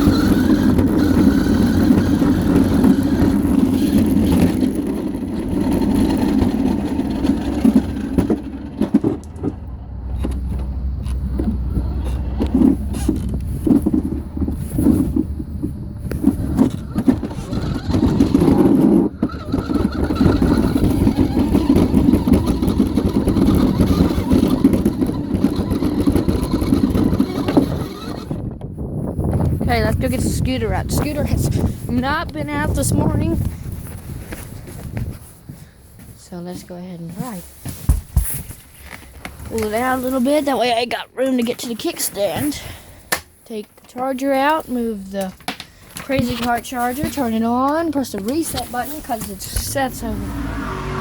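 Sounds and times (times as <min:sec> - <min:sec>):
small vehicle motor running: 0:00.0 - 0:28.5, 0:48.4 - 0:51.0
knocks and rattles: 0:00.0 - 0:35.2.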